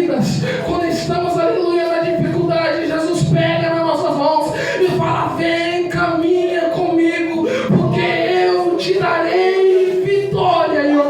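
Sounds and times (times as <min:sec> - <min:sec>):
person singing long notes: 0:00.0 - 0:11.0.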